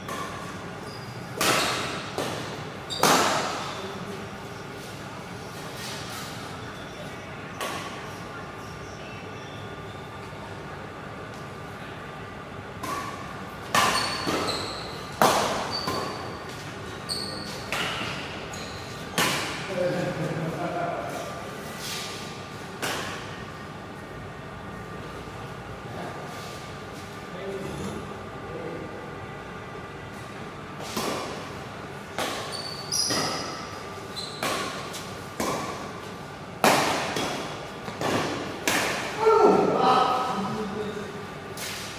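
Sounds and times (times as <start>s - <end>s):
high shoe squeaks: 0.8s - 1.9s, 13.8s - 19.2s, 32.4s - 34.6s
rackets hitting shuttlecock: 1.4s - 3.7s, 12.8s - 16.6s, 32.1s - 36.0s, 36.6s - 39.2s.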